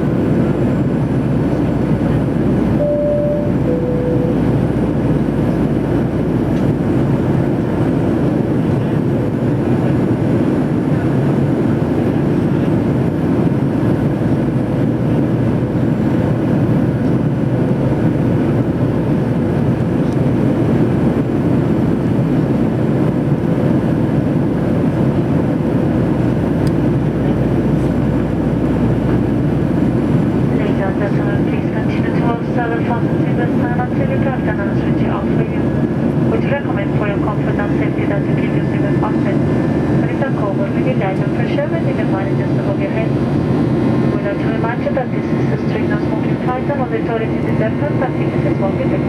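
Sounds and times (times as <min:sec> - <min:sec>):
jet engines and airflow rush: 0:00.0 - 0:49.0
faint steady hum: 0:02.8 - 0:05.2.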